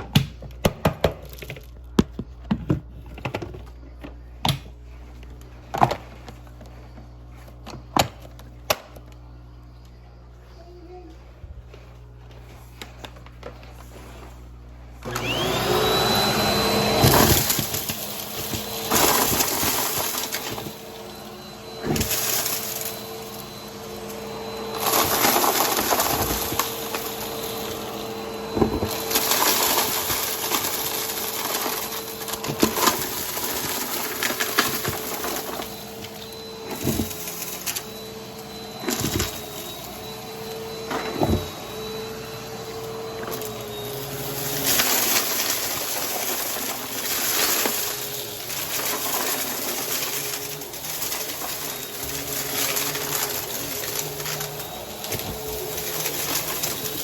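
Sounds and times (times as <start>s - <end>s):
vacuum cleaner motor whining: 0.0s - 57.0s
debris crunching in vacuum: 11.8s - 57.0s.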